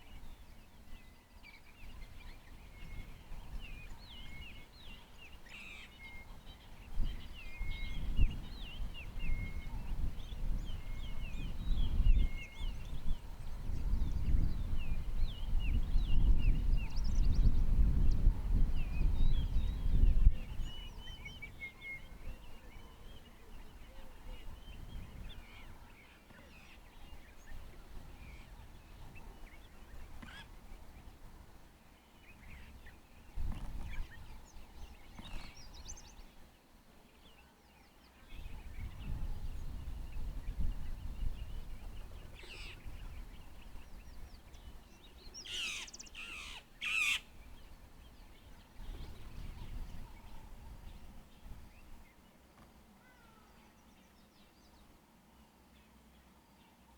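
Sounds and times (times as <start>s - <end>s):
wild birds calling: 42.3s - 51.0s.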